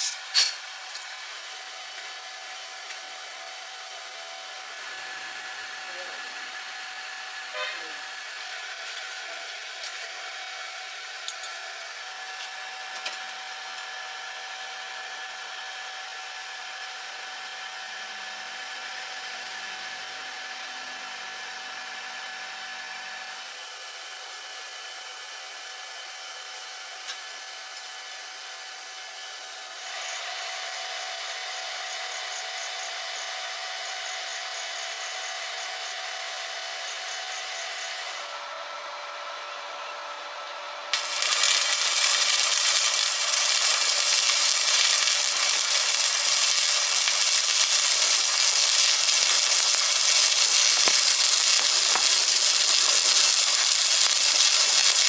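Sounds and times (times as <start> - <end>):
welding arc hissing: 0.0 - 0.6, 41.0 - 55.0.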